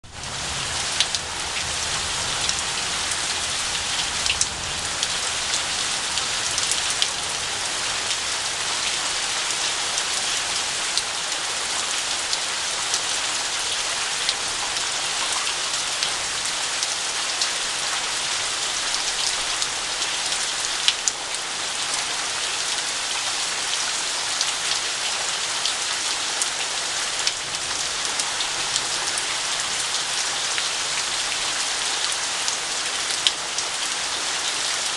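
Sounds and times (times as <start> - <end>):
heavy rain: 0.0 - 34.9
raindrops ticking on surface: 0.2 - 7.5, 12.2 - 21.8, 26.3 - 33.7.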